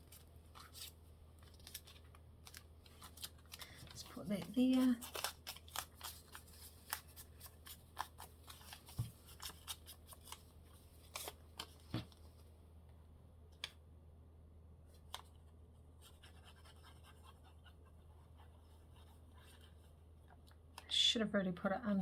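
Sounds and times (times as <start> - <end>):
paper rustling and tapping: 0.0 - 10.4, 11.1 - 12.4
low steady hum: 0.0 - 22.0.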